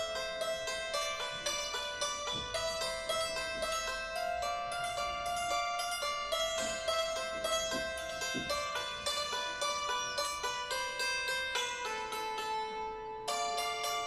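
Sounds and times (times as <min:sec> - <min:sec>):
santoor melody: 0:00.0 - 0:14.0
soft low percussion thumps: 0:01.6 - 0:04.2, 0:06.3 - 0:09.4.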